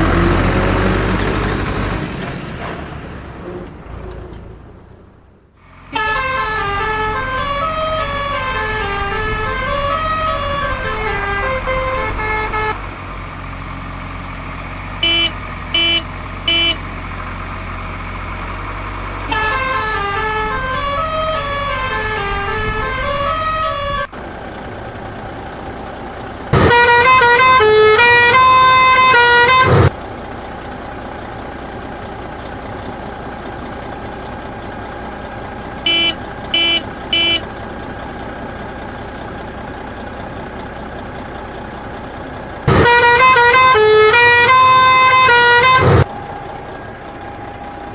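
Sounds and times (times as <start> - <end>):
low engine rumble: 0.0 - 47.9
loud horn blast: 5.8 - 12.9, 15.0 - 16.9, 19.2 - 24.1, 26.6 - 29.9, 35.9 - 37.5, 42.7 - 46.1
short horn beeps: 15.0 - 16.9, 35.9 - 37.5.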